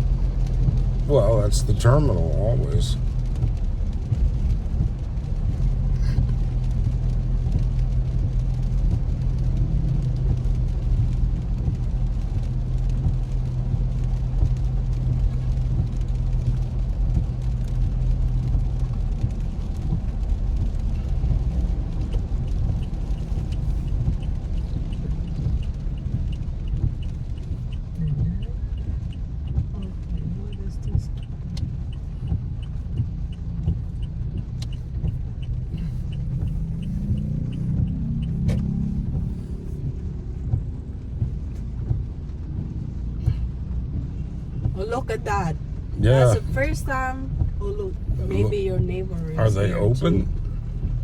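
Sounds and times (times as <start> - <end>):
car engine and road hum: 0.0 - 51.0
regular ticking: 20.0 - 51.0.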